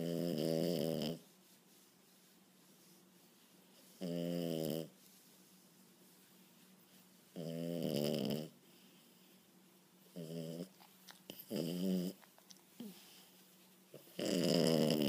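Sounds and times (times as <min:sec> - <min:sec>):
puppy snoring: 0:00.0 - 0:01.3, 0:03.9 - 0:05.0, 0:07.3 - 0:08.6, 0:10.1 - 0:13.2, 0:13.9 - 0:15.0.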